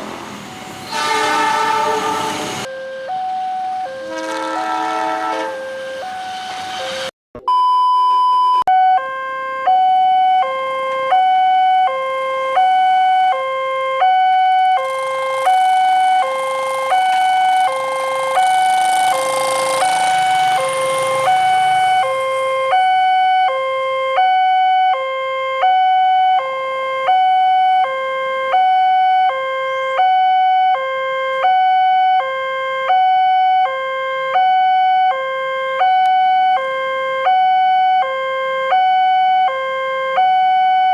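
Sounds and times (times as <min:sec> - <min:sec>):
two-tone level crossing alarm: 0:00.6 - 0:40.9
rushing noise: 0:14.8 - 0:23.0.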